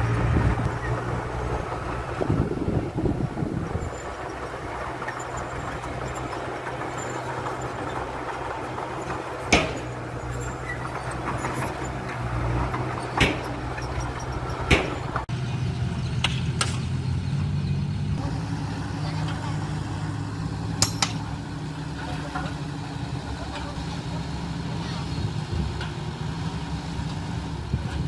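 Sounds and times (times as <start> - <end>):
heavy machinery engine running: 0.0 - 28.0
sharp knocks: 9.5 - 10.0, 12.8 - 13.7, 14.6 - 15.2.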